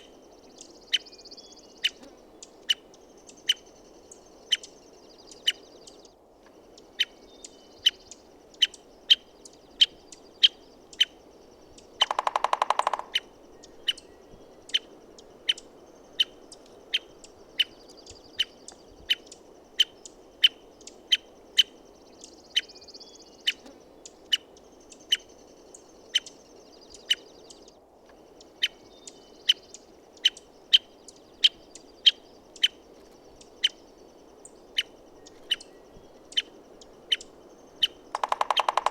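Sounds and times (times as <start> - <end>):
woodpecker call notes: 0.0 - 38.9
woodpecker drumming: 11.7 - 15.6, 34.8 - 38.9.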